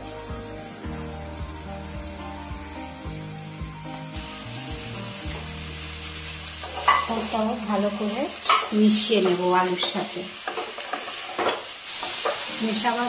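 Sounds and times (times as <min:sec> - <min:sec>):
background music with held notes: 0:00.0 - 0:09.5
food sizzling in hot oil: 0:00.0 - 0:13.0.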